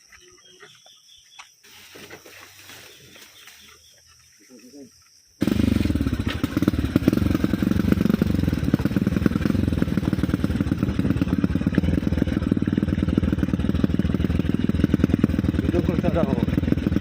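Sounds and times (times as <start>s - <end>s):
motorcycle engine running: 5.4s - 17.0s.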